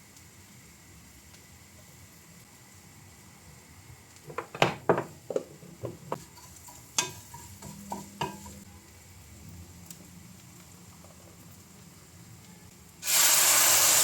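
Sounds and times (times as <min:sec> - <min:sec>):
kitchenware clinking and knocking: 0:04.3 - 0:06.3.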